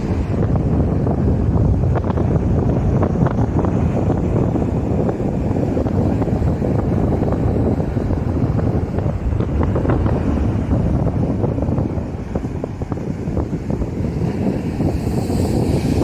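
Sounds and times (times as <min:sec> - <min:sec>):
waves breaking and washing: 0:00.0 - 0:16.0
wind buffeting microphone: 0:00.0 - 0:16.0.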